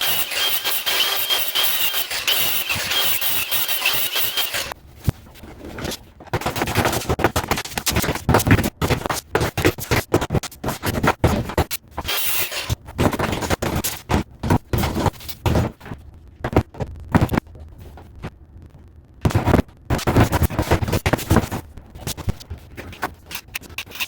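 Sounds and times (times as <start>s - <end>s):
power tool whining: 0.0s - 4.7s.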